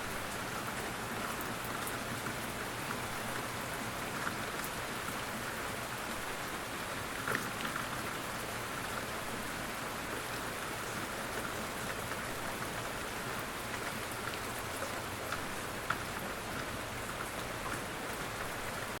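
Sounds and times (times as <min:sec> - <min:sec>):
gentle rain falling: 0:00.0 - 0:19.0
raindrops ticking: 0:13.6 - 0:18.5.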